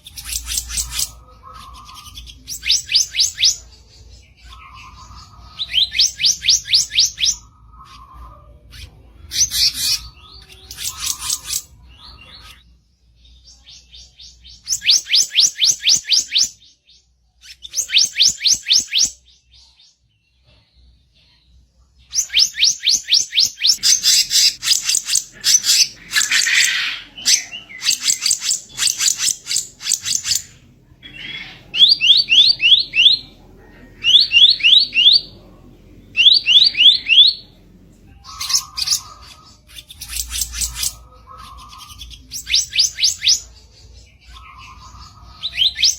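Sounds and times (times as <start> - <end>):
songbird harsh rasping song: 0.0 - 19.7, 22.0 - 45.9.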